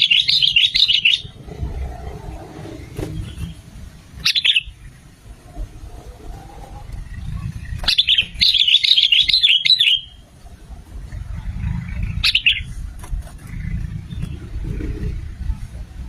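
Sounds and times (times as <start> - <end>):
bird singing bubbly phrases: 0.0 - 2.1, 4.2 - 5.0, 7.0 - 10.2, 11.7 - 12.8
low rumble: 1.2 - 3.9, 4.7 - 8.4.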